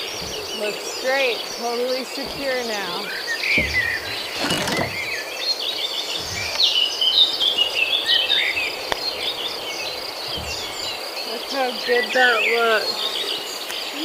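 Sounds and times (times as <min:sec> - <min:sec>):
dull thump: 0:00.0 - 0:05.3, 0:06.0 - 0:11.0
insects droning: 0:00.0 - 0:14.0.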